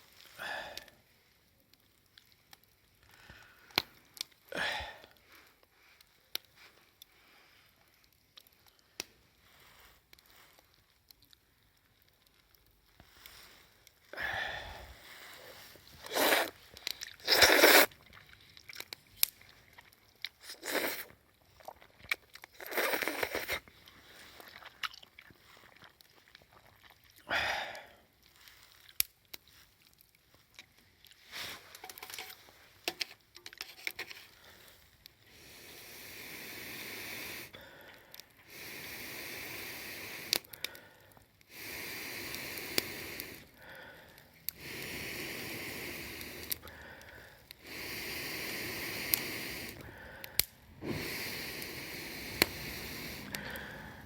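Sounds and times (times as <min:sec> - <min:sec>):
person chewing crunchy food: 0:15.4 - 0:27.3.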